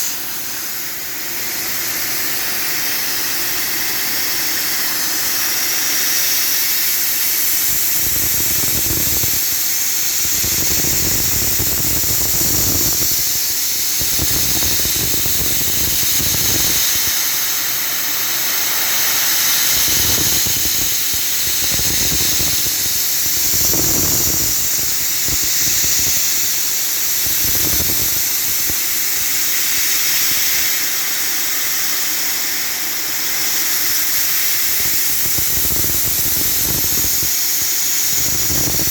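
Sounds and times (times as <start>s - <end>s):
milling machine cutting metal: 0.0s - 38.9s.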